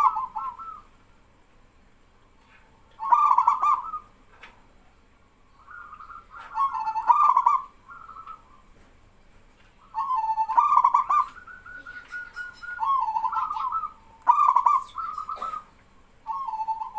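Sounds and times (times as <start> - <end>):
doves cooing: 0.0 - 1.0, 2.5 - 4.6, 5.5 - 8.9, 9.8 - 16.9.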